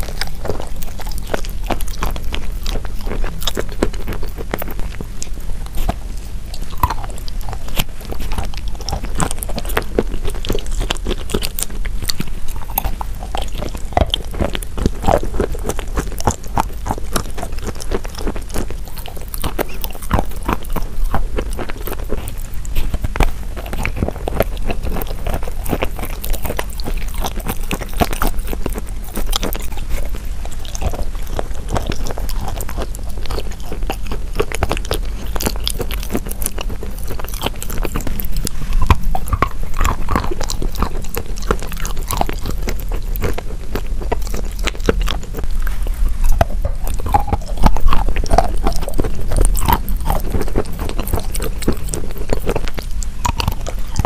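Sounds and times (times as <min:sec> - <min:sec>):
chewing and crunching: 0:00.0 - 0:54.0
steady low rumble: 0:00.0 - 0:54.0
wet mouth sounds: 0:00.0 - 0:54.0.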